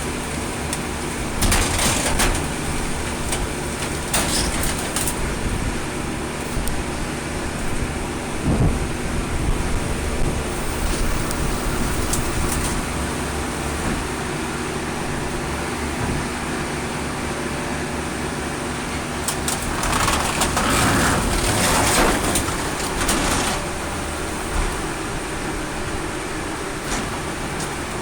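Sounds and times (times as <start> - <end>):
metal cracking and crunching: 0.6 - 5.6, 19.1 - 25.2.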